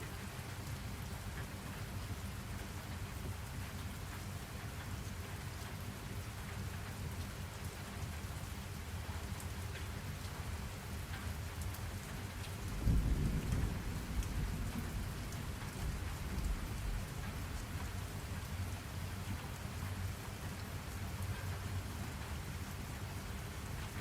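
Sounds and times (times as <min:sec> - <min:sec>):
steady rain falling: 0:00.0 - 0:24.0
raindrop ticks: 0:02.9 - 0:24.0
thunder rumbling: 0:12.6 - 0:17.9.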